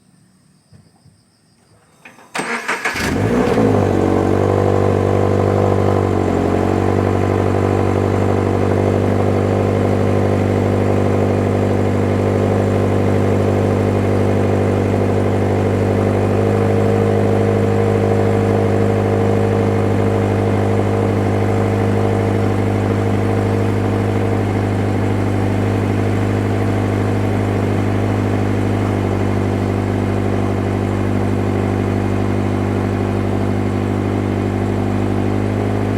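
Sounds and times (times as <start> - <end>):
starter motor cranking: 2.3 - 3.6
car engine fast idle: 2.3 - 35.9.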